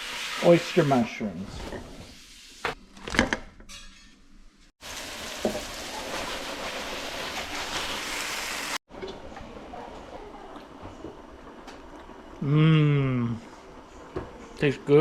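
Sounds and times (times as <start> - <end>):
mushrooms sizzling in a pan: 0.0 - 1.1, 4.8 - 8.8.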